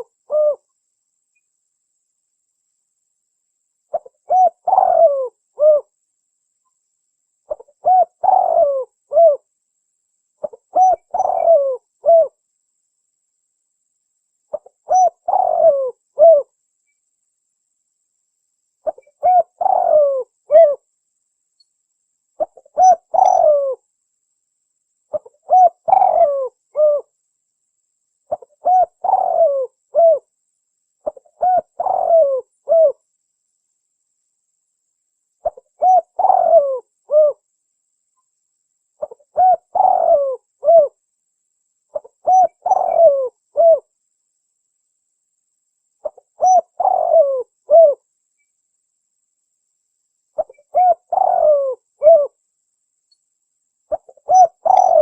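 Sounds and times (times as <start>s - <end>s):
dove cooing: 0.0s - 0.7s, 3.9s - 5.9s, 7.5s - 9.5s, 10.4s - 12.4s, 14.5s - 16.5s, 18.8s - 20.8s, 22.4s - 23.8s, 25.1s - 27.1s, 28.3s - 30.3s, 31.0s - 33.0s, 35.4s - 37.4s, 39.0s - 41.0s, 41.9s - 43.9s, 46.0s - 48.0s, 50.4s - 52.4s, 53.9s - 55.0s.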